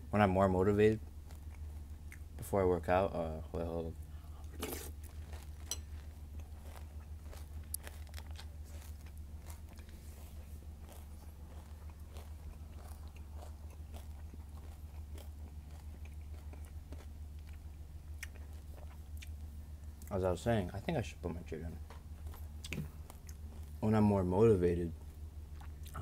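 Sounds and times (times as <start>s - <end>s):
person chewing crunchy cereal: 1.0s - 2.5s, 4.0s - 20.2s, 22.2s - 24.0s, 24.9s - 26.0s.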